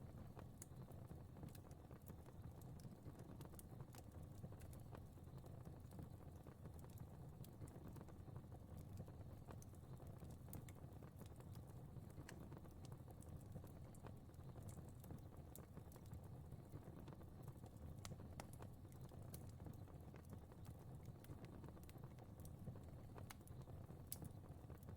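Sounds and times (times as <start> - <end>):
fire crackling: 0.1 - 24.9.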